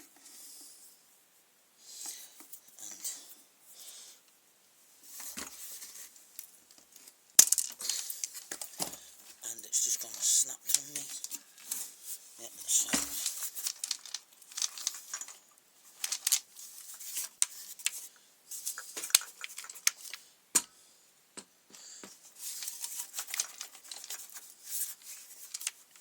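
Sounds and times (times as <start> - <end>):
hands clicking and scraping plastic parts: 5.2 - 12.0, 12.6 - 20.8, 21.4 - 26.0.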